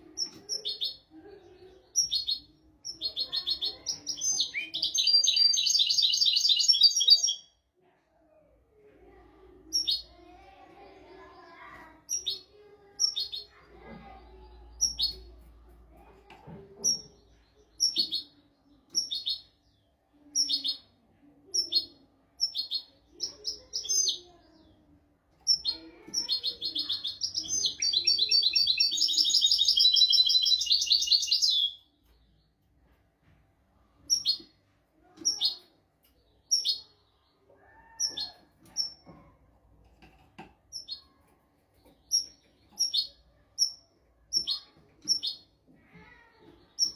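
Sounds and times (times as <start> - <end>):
goldfinch singing: 3.2 - 7.4, 26.2 - 31.8.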